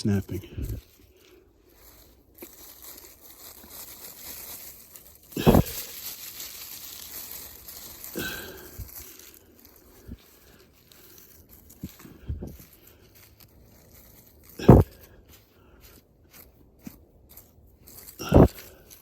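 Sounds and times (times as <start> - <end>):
snowy twigs rustling: 0.1 - 19.0
snow thump: 5.4 - 5.8, 14.6 - 14.9.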